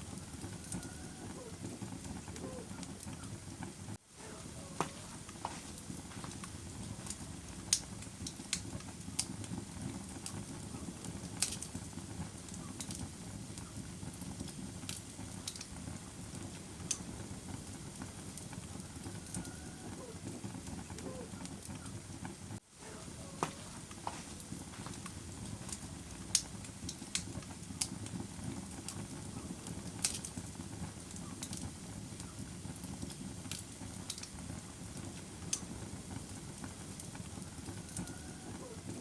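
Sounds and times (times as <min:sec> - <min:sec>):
sharp pops of fire: 0:00.0 - 0:39.0
wood fire crackling: 0:00.0 - 0:39.0.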